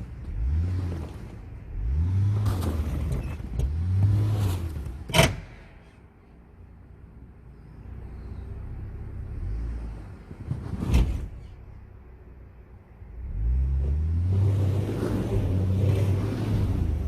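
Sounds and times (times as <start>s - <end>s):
engine running and revving: 0.0s - 5.1s, 13.1s - 17.0s.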